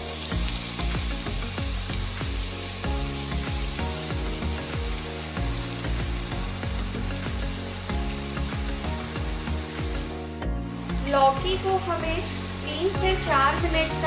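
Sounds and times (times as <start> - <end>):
background music with steady beat: 0.0 - 14.0
vegetable sizzling in hot fat: 0.0 - 14.0.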